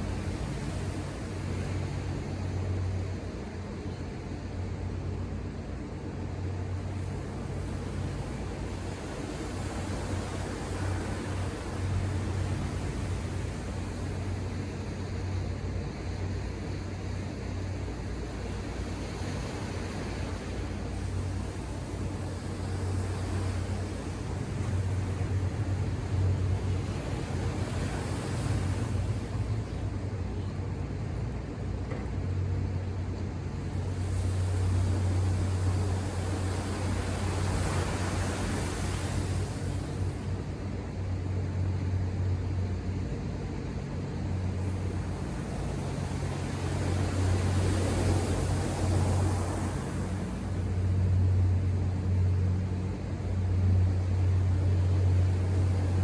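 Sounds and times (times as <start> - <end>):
waves breaking: 5.7 - 56.0.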